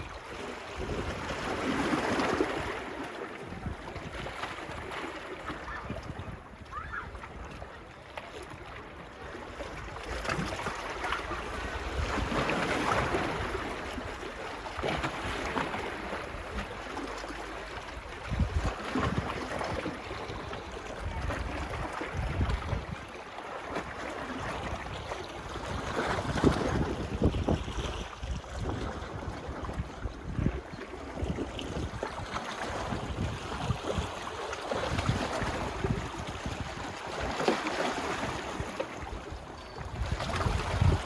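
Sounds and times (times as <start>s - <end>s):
wind on microphone: 0.0s - 7.7s, 18.0s - 23.1s, 24.4s - 41.0s
waves washing onto beach: 0.0s - 41.0s.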